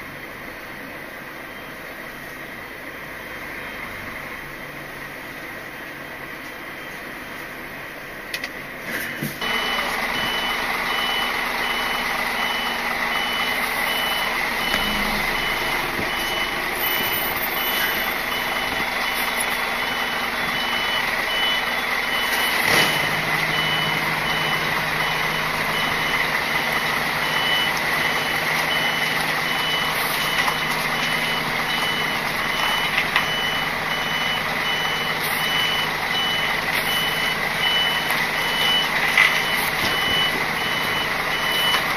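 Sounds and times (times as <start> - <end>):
diesel engine running: 0.0 - 41.9
reversing alarm beeping: 9.4 - 41.9.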